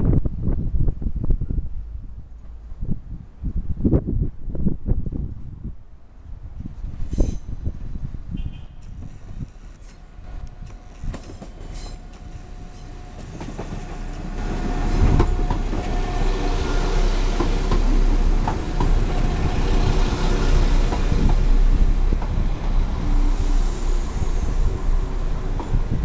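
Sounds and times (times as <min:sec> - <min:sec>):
diesel train passing: 0:05.9 - 0:26.0.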